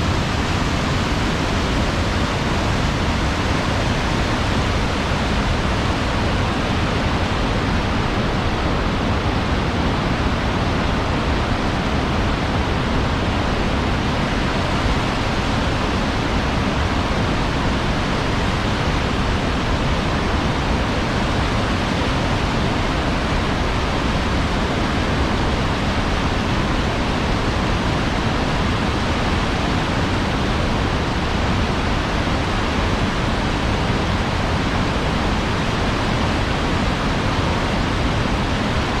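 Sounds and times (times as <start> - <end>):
waterfall roaring: 0.0 - 39.0.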